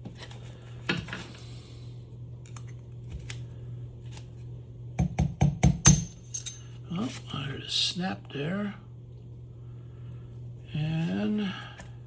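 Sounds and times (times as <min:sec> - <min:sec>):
low steady hum: 0:00.0 - 0:12.0
pliers clicking and scraping metal: 0:05.9 - 0:06.6.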